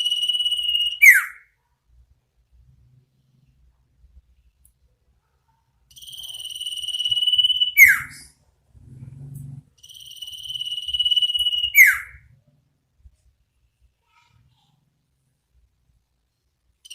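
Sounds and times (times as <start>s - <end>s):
bird whistling call: 0.9s - 1.4s, 7.1s - 8.3s, 11.0s - 12.2s
faint low sound: 7.9s - 11.5s.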